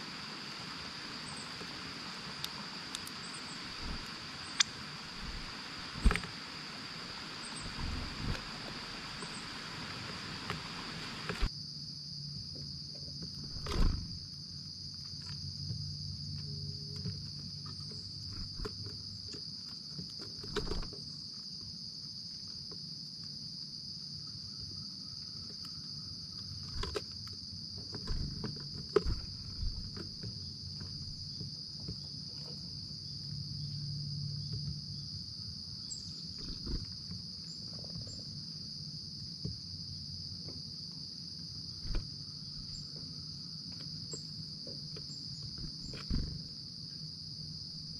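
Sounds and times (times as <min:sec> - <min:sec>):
hiss: 0:00.0 - 0:11.5
crickets chirping: 0:00.0 - 0:47.9
sharp clicks: 0:03.8 - 0:06.3.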